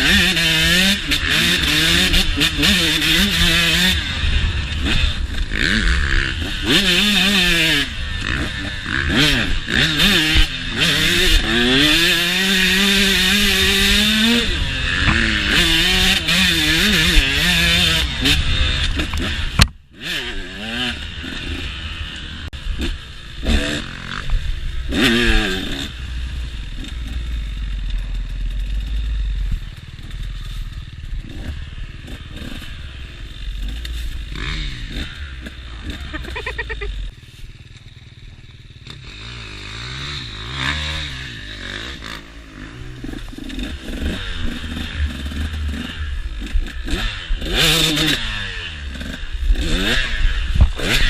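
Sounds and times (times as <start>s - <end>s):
motocross bike engine revving: 0.0s - 51.0s.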